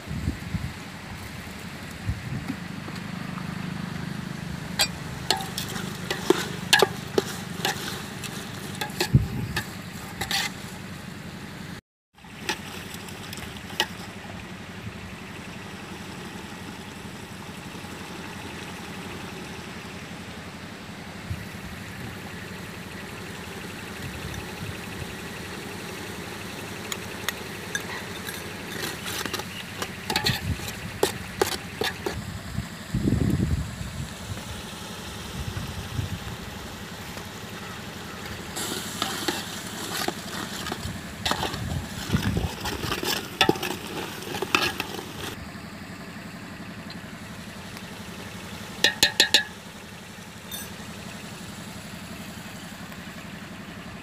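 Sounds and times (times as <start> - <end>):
metal ladle scraping a pot: 4.8 - 10.9, 12.4 - 14.1, 27.7 - 32.2, 38.6 - 45.4, 48.8 - 49.5, 50.5 - 50.8
masala sizzling in a pot: 5.0 - 10.8, 38.6 - 45.4.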